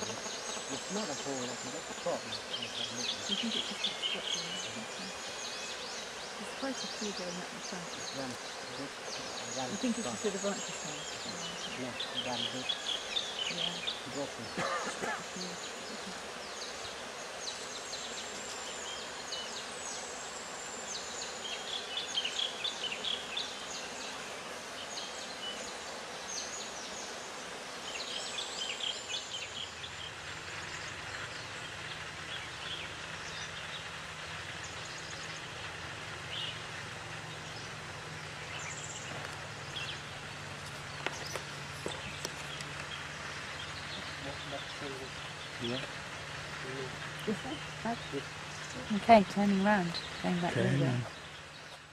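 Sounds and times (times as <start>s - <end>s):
low steady hum: 29.5s - 51.7s.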